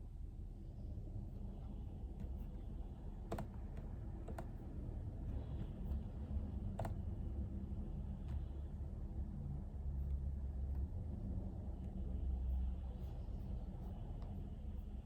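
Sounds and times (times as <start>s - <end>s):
low room hum: 0.0s - 15.0s
computer keyboard keystrokes: 3.3s - 4.5s.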